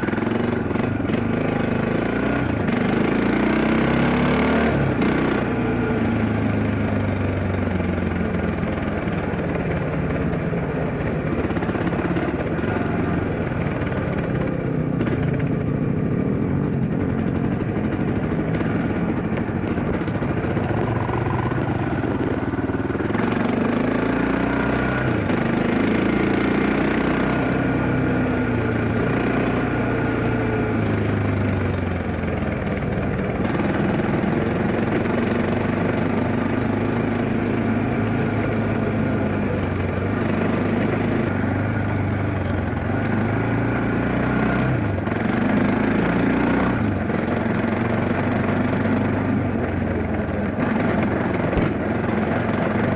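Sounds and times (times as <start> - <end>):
dirt bike engine revving: 0.0 - 6.3, 17.2 - 27.8, 42.8 - 52.9.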